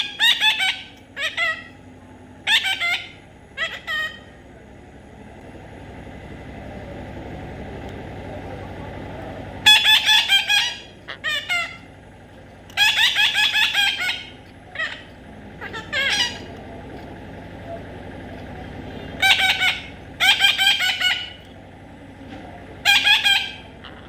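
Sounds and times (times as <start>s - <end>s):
parrot squawking: 0.0s - 1.8s, 2.4s - 4.4s, 9.6s - 11.9s, 12.7s - 16.6s, 19.0s - 21.5s, 22.8s - 24.0s
low background rumble: 0.0s - 24.0s.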